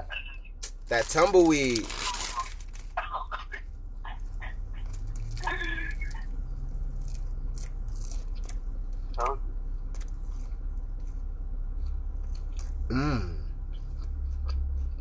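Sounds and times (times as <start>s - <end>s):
steady low hum: 0.0s - 15.0s
person chewing a burger: 4.2s - 15.0s
brief vocal sounds: 12.9s - 13.5s.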